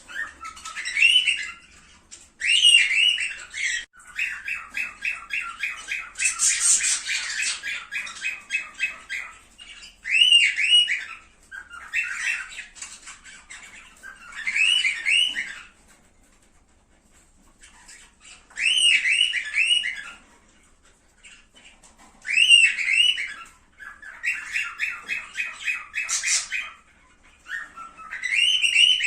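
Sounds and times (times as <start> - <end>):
cockatiels calling: 0.0 - 29.0.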